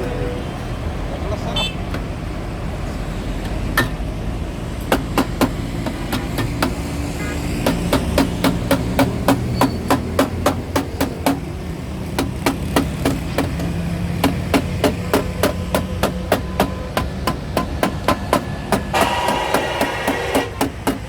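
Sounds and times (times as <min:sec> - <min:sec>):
hammer striking metal: 0:07.6 - 0:11.5, 0:12.1 - 0:21.0.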